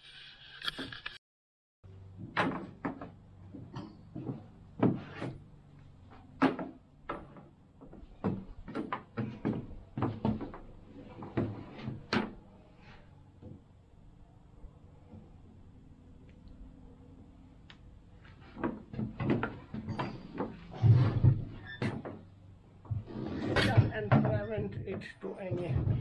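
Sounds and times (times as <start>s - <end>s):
objects knocking and clunking: 2.0s - 13.8s, 17.0s - 26.0s.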